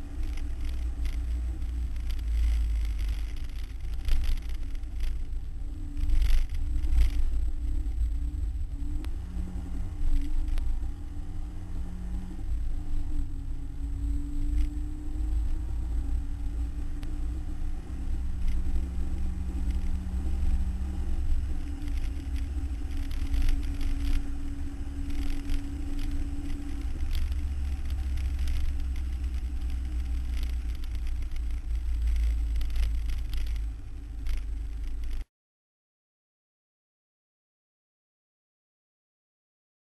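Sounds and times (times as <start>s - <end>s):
heavy low rumble: 0.0s - 35.3s
race car engine revving: 6.1s - 34.7s.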